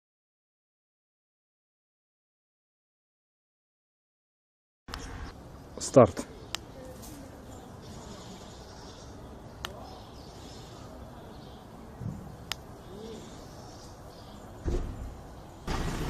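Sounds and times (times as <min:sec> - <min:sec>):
outdoor background noise: 0:04.9 - 0:16.0.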